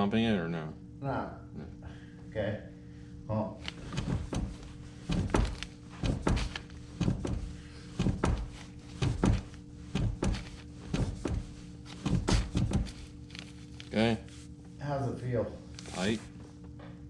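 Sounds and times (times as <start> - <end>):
brake pedal thunking: 3.9 - 13.0.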